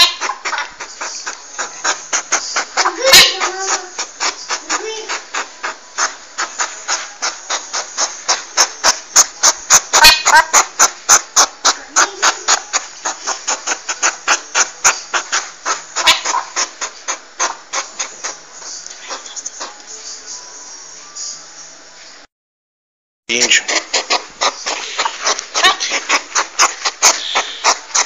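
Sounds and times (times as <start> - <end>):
porcupine clicking: 0.0 - 20.0, 23.4 - 28.0
porcupine squeaky calls: 0.0 - 20.4, 23.3 - 28.0.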